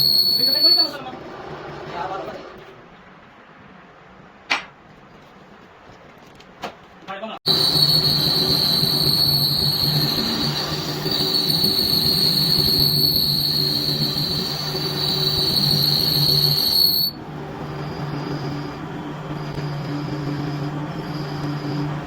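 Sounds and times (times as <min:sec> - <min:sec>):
lathe high-pitched squeal: 0:00.0 - 0:01.0, 0:07.5 - 0:22.0
lathe low hum: 0:07.5 - 0:22.0.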